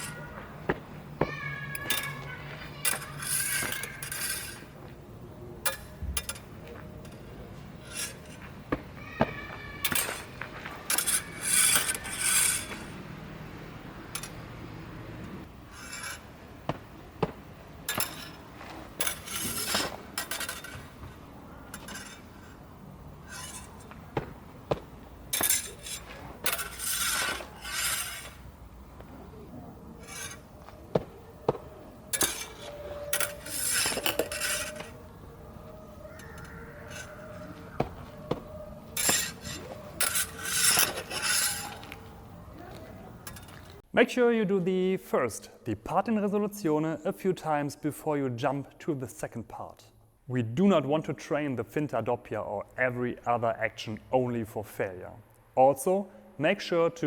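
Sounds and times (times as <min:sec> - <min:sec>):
steel blades sliding: 0:01.5 - 0:04.8, 0:05.6 - 0:08.5, 0:09.8 - 0:13.4, 0:14.0 - 0:28.6, 0:29.9 - 0:42.3, 0:43.1 - 0:43.8
sword blades clinking: 0:01.6 - 0:04.8, 0:09.8 - 0:10.3, 0:17.9 - 0:21.0, 0:25.3 - 0:28.4, 0:32.1 - 0:35.0, 0:38.4 - 0:42.0.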